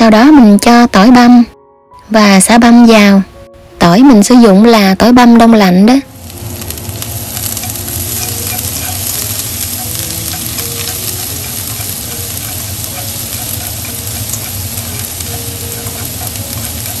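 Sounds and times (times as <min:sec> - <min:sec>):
food sizzling in oil: 0:05.8 - 0:17.0.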